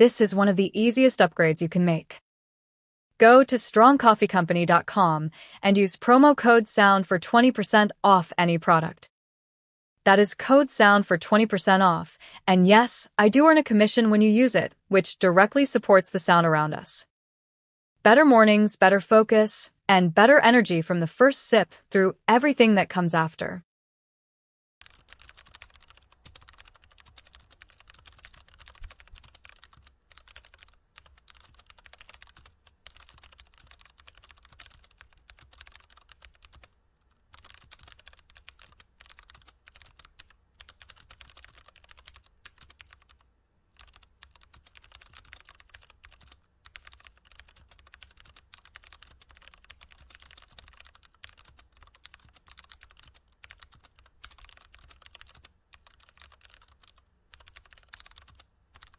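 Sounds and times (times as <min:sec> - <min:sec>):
computer keyboard typing: 0:24.8 - 0:58.9.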